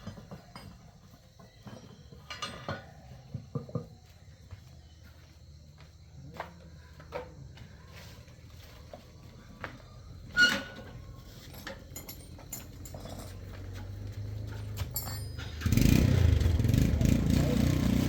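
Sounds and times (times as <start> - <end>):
ringing metal clink: 11.6 - 13.5, 14.8 - 15.7
motorcycle engine running: 15.5 - 18.0.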